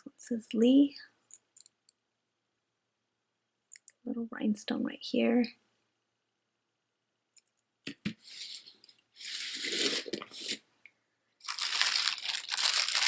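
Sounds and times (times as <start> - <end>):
rustling: 8.2 - 10.6, 11.4 - 13.0
plastic bag crinkling: 8.3 - 10.6, 11.4 - 13.0.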